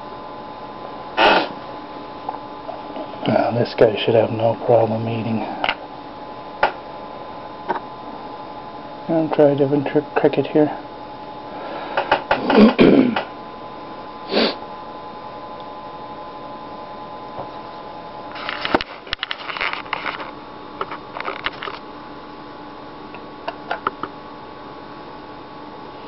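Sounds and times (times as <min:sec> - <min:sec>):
steady background hum: 0:00.0 - 0:26.0
rustling handling noise: 0:18.3 - 0:21.8.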